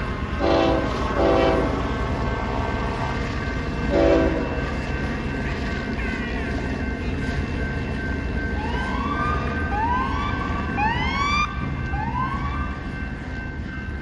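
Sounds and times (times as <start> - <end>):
police sirens rising sweeps: 8.4 - 13.8.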